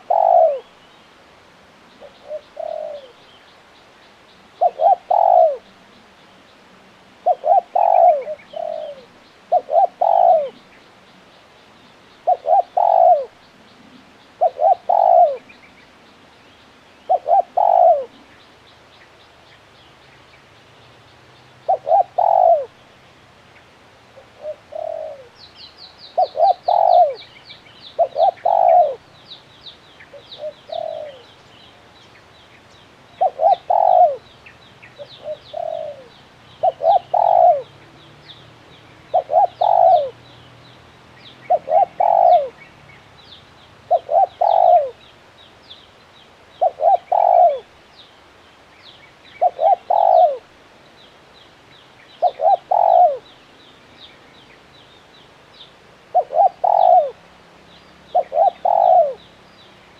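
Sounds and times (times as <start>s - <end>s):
dove cooing: 0.0s - 0.8s, 2.0s - 3.3s, 4.5s - 5.8s, 7.2s - 10.7s, 12.2s - 15.7s, 17.0s - 18.4s, 21.6s - 22.8s, 24.1s - 25.4s, 26.1s - 29.2s, 30.0s - 31.4s, 33.1s - 34.3s, 35.0s - 37.8s, 39.0s - 40.3s, 41.4s - 42.7s, 43.9s - 45.0s, 46.6s - 47.8s, 49.4s - 50.6s, 52.2s - 53.4s, 56.1s - 57.3s, 58.1s - 59.3s.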